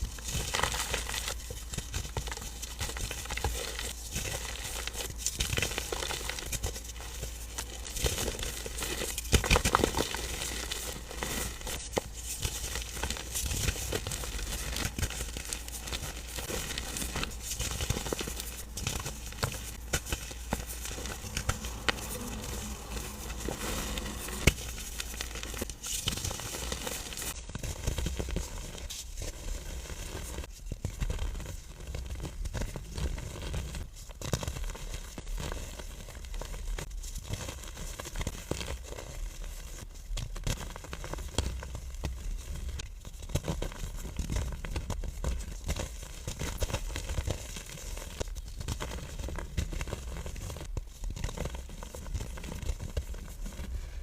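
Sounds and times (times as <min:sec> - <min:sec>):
powder block crunching: 0:07.5 - 0:28.7.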